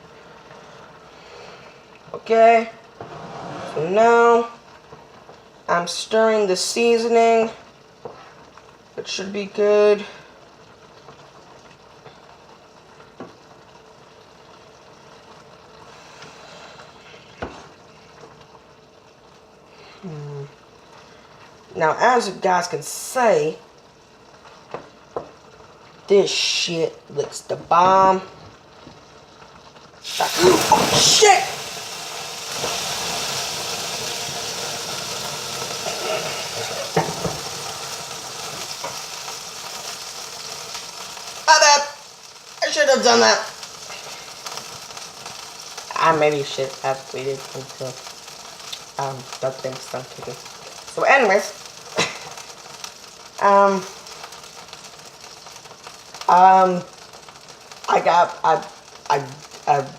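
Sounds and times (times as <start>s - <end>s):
food sizzling in a pan: 0.0s - 59.9s.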